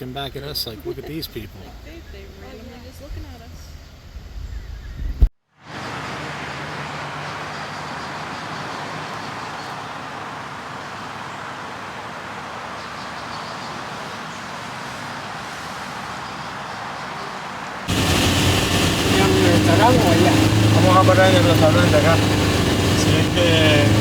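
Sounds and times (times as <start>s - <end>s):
faint low engine hum: 17.9s - 24.0s
road noise rushing hiss: 17.9s - 24.0s.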